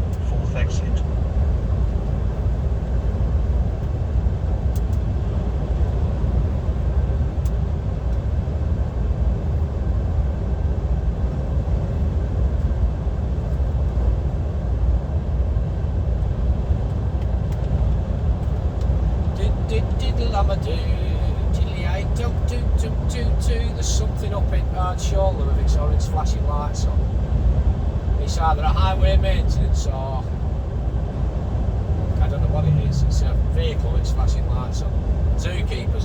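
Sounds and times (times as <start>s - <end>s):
road noise inside cab: 0.0s - 36.0s
lorry engine droning: 17.6s - 36.0s.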